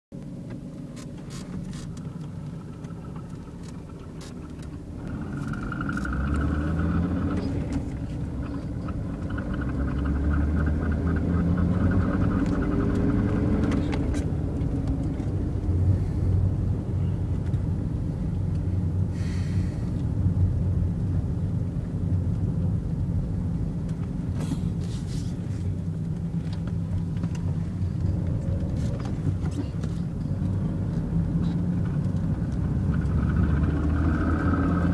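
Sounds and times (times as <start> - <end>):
car engine revving: 0.6 - 34.9
repeating ticking engine noise: 8.0 - 13.4.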